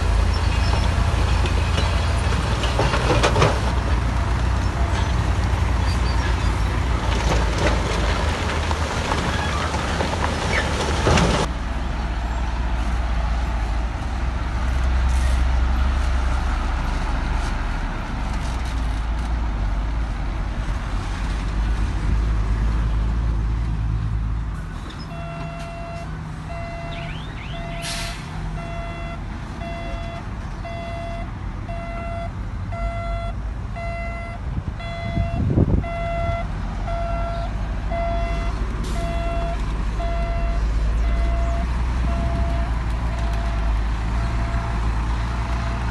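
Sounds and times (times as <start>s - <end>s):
reversing alarm beeping: 25.1s - 44.8s.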